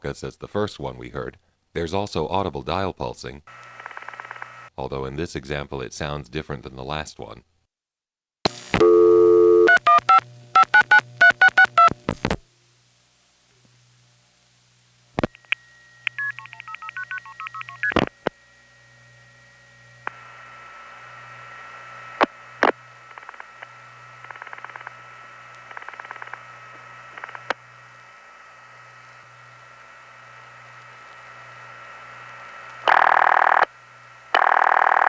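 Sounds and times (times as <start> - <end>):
line hiss and low hum: 0.0 - 7.5, 8.5 - 35.0
rapid dial-pulse clicks: 3.5 - 4.7, 15.2 - 18.4, 22.2 - 27.6, 30.8 - 33.7, 34.3 - 35.0
steady telephone tone: 8.8 - 11.9, 15.4 - 18.0, 32.8 - 33.7, 34.3 - 35.0
telephone line click: 15.2 - 18.1, 23.1 - 24.9, 25.6 - 26.4.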